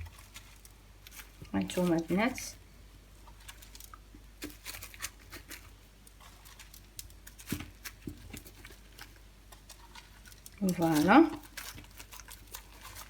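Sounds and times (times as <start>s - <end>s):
hands tapping and rustling pastries: 0.0s - 13.0s.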